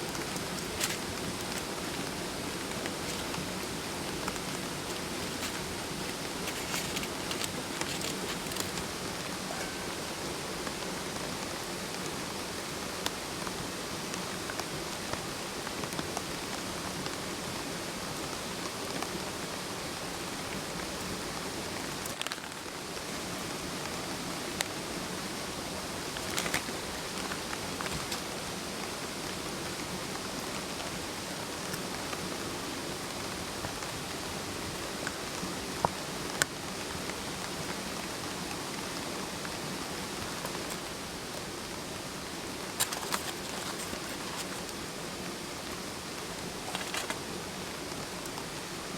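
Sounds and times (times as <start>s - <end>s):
campfire popping: 0.0s - 9.8s
stream flowing over rocks: 0.0s - 48.9s.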